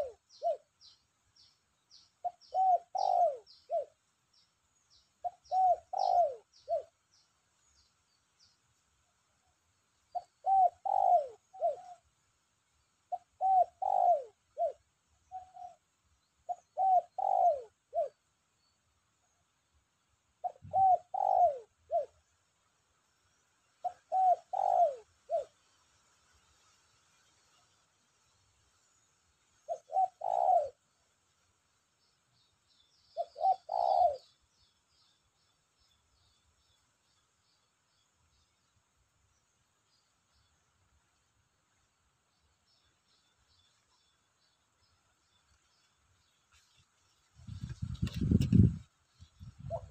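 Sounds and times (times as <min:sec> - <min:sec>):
dove cooing: 0:00.0 - 0:00.7, 0:02.2 - 0:04.0, 0:05.2 - 0:07.0, 0:10.1 - 0:12.0, 0:13.1 - 0:15.8, 0:16.5 - 0:18.2, 0:20.4 - 0:22.2, 0:23.8 - 0:25.6, 0:29.6 - 0:30.9, 0:33.2 - 0:34.4, 0:49.5 - 0:49.9
small birds chirping: 0:00.0 - 0:49.9.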